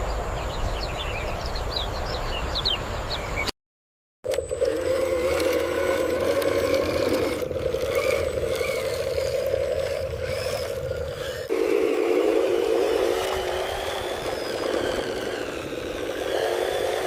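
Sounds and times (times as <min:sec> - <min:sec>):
small motor and gearbox whirring: 0:04.3 - 0:17.0.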